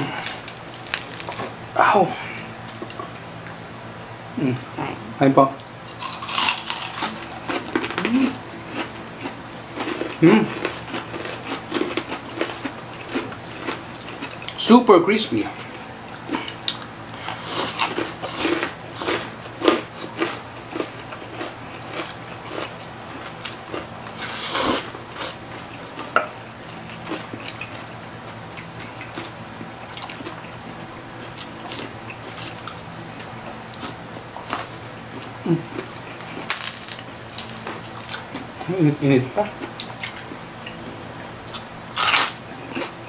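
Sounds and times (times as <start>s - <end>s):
crunchy chewing: 0.0s - 1.8s, 5.9s - 14.6s, 15.5s - 43.0s.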